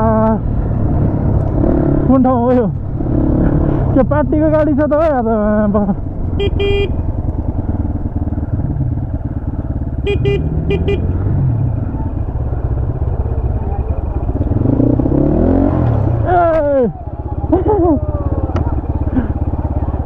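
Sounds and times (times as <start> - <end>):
motorcycle engine running: 0.0 - 20.0
horn beeping: 6.3 - 7.1, 9.9 - 11.6.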